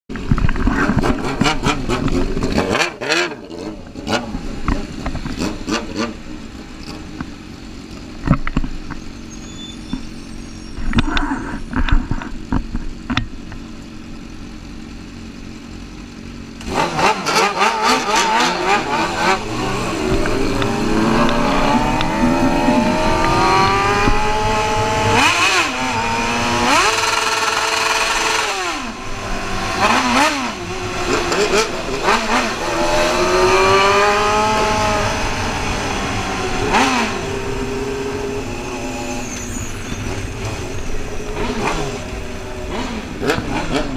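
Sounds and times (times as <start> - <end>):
motorcycle engine revving: 0.1 - 9.9, 10.8 - 43.9.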